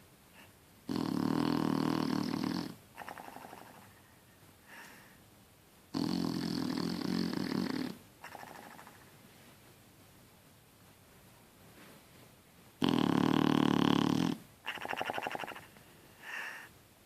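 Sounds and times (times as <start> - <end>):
dog snoring: 0.8 - 3.9, 5.9 - 9.0, 12.8 - 15.6.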